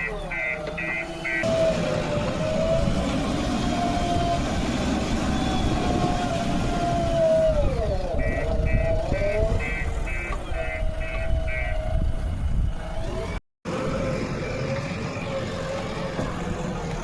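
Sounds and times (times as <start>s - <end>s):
reversing alarm beeping: 0.0s - 1.5s
diesel engine under load: 0.0s - 17.0s.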